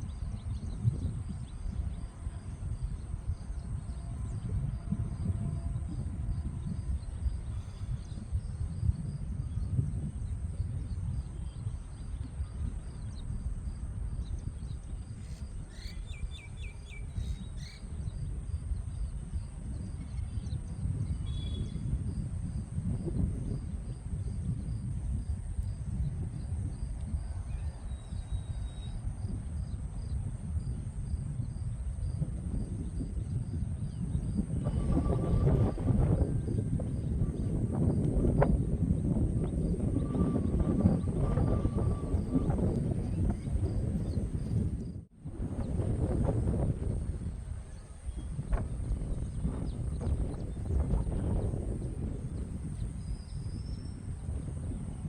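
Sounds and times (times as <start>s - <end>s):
wind rumble on microphone: 0.0s - 55.0s
bird chirps: 15.7s - 17.9s
high insect drone: 27.5s - 44.9s.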